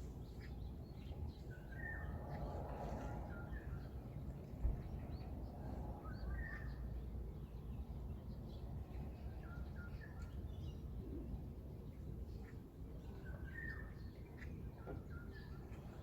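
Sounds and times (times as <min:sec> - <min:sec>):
steady low rumble: 0:00.0 - 0:09.3
small birds chirping: 0:00.0 - 0:16.0.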